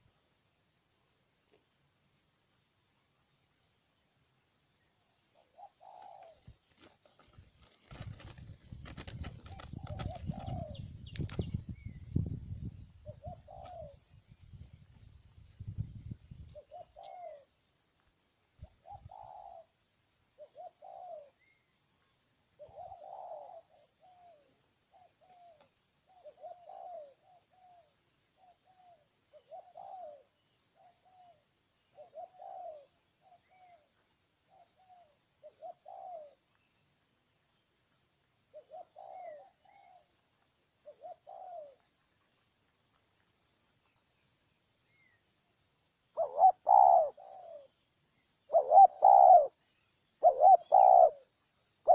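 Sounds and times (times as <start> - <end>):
small bird chirping: 4.8 - 17.5, 18.6 - 51.9
dove cooing: 5.3 - 11.9, 13.0 - 14.2, 16.5 - 17.6, 18.6 - 21.6, 22.5 - 36.6, 38.5 - 42.0, 46.1 - 51.9.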